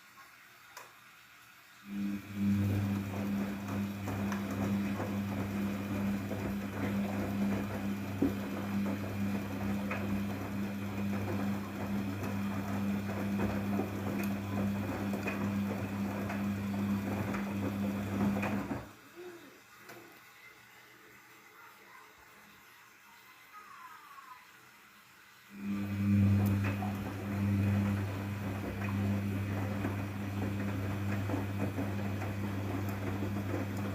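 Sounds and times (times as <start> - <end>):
washing machine hum: 0.0 - 33.9
water pouring into machine: 1.8 - 19.0, 25.3 - 33.9.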